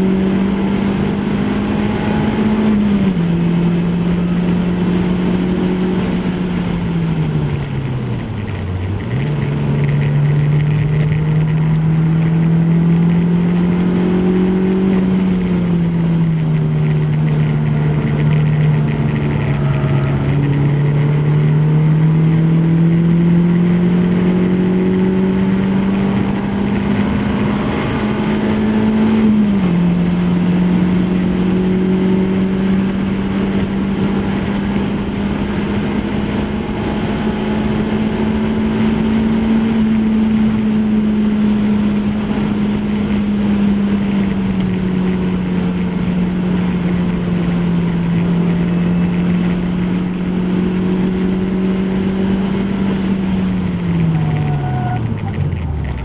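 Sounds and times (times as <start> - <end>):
car engine pulling hard: 0.0 - 56.0
wind and road noise: 0.0 - 56.0.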